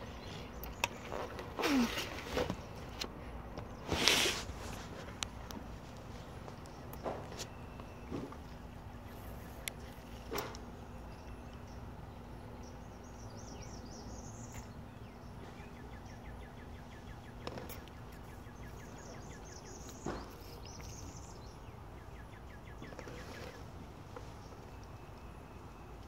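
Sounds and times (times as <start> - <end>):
small bird chirping: 6.4 - 25.9.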